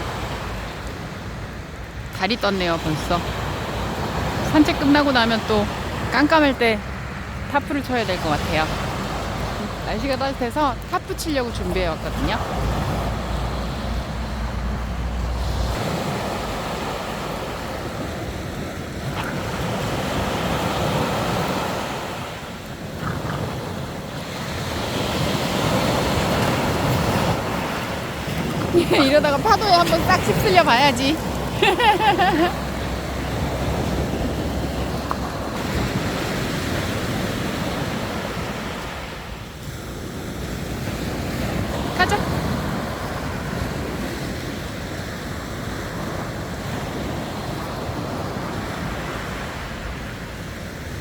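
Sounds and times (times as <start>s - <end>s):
sea waves washing on beach: 0.0s - 51.0s
wind on microphone: 12.1s - 39.0s.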